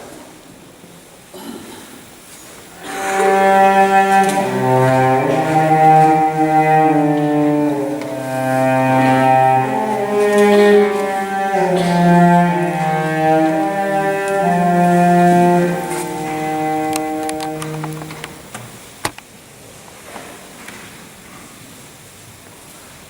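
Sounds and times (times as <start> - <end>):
slow bowed string music: 2.8 - 18.8.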